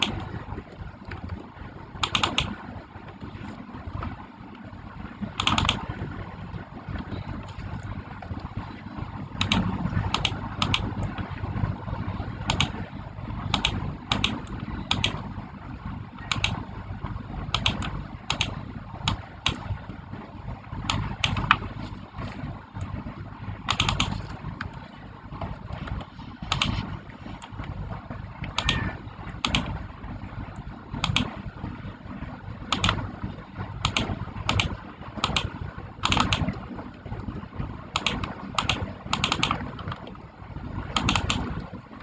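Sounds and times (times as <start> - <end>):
low machine hum: 0.0 - 42.0
keyboard key clicks: 2.0 - 2.6, 5.4 - 5.8, 9.4 - 10.9, 12.5 - 12.8, 13.5 - 15.2, 17.5 - 18.5, 23.7 - 24.2, 33.8 - 36.5, 38.0 - 39.9, 41.0 - 41.5.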